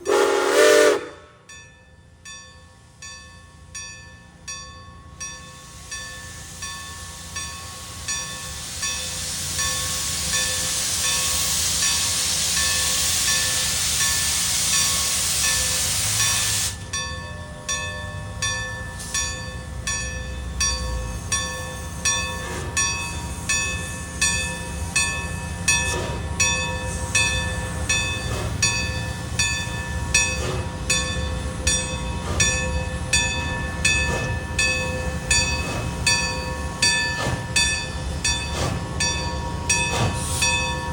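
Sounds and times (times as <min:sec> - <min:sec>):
train wheels clicking over rail joints: 0:05.2 - 0:40.9
loud rushing hiss: 0:05.6 - 0:16.9.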